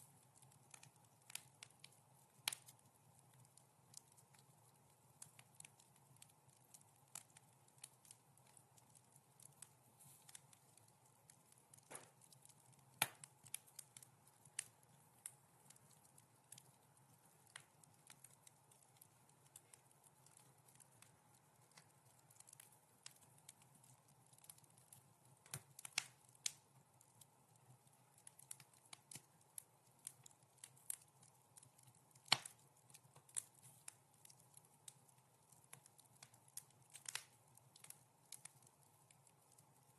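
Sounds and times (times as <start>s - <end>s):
wood fire crackling softly: 0.0s - 39.9s
sharp fire pops: 11.8s - 12.3s.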